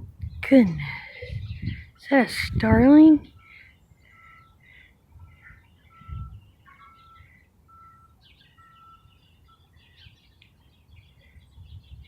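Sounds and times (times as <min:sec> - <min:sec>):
high bird chirps: 0:03.3 - 0:12.0.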